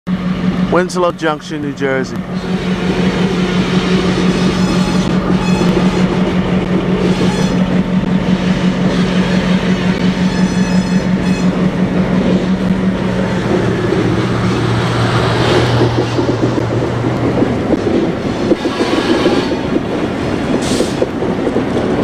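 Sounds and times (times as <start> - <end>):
diesel locomotive engine drone: 0.1 - 22.0
rhythmic pulsing of rolling train: 0.1 - 22.0
high-pitched train squeals: 2.3 - 12.5, 18.3 - 19.8.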